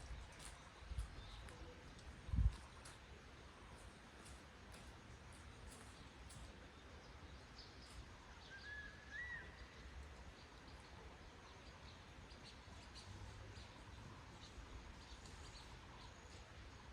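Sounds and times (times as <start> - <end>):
faint bird calls: 8.4 - 10.0
whistled bird call: 8.5 - 9.8.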